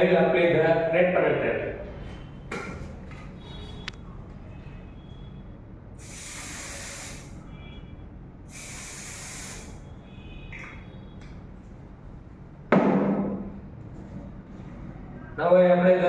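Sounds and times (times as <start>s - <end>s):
aerosol can spraying: 6.0s - 7.4s, 8.5s - 9.8s.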